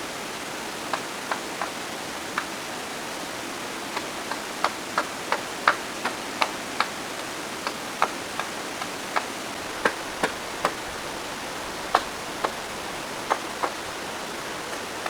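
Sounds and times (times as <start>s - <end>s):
steady rushing noise: 9.5s - 15.0s.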